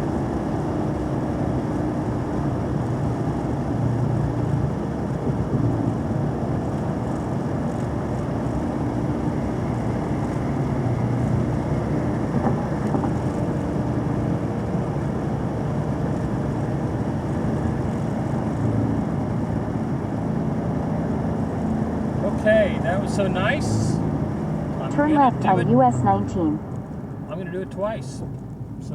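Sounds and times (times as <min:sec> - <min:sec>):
road noise: 0:00.0 - 0:28.9
car engine revving: 0:00.9 - 0:28.9.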